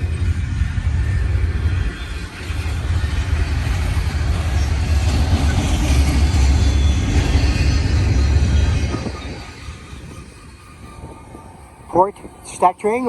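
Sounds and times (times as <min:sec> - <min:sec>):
freight train rumbling past: 0:00.0 - 0:13.0.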